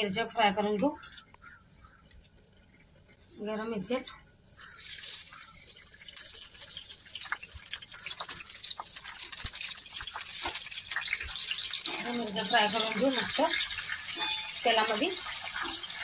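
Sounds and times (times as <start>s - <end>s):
chillies sizzling in hot oil: 4.5s - 16.0s.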